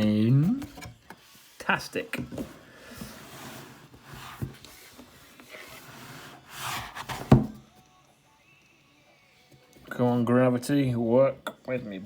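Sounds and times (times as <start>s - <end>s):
cardboard rubbing and sliding: 1.2s - 7.6s.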